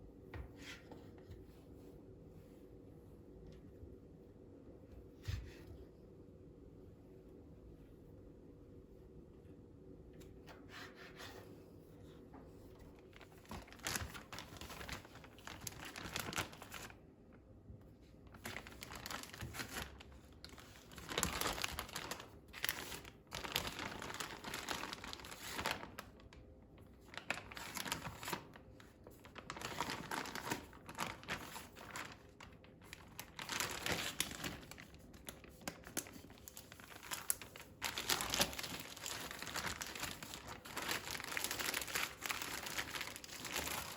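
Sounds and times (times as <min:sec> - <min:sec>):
packaging crinkling and rustling: 0:12.7 - 0:17.0, 0:18.2 - 0:43.9
packaging tearing: 0:13.4 - 0:16.9, 0:18.4 - 0:26.0, 0:27.1 - 0:28.4, 0:29.3 - 0:32.2, 0:32.9 - 0:43.9.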